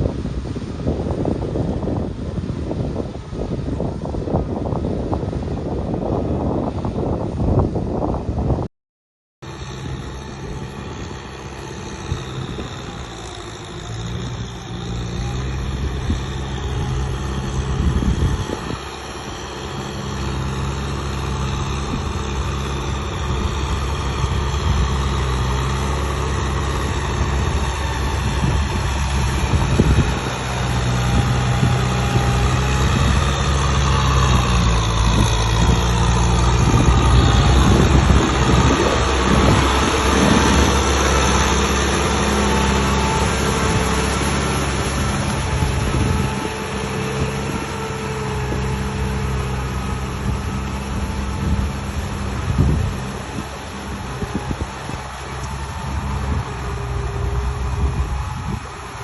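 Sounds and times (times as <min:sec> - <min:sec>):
diesel engine running steadily: 0:00.0 - 0:08.7, 0:09.4 - 0:59.0.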